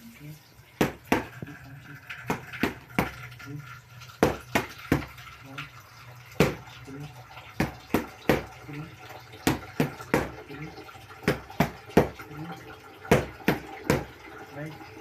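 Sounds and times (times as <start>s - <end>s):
boxing punches landing: 7.6s - 8.5s.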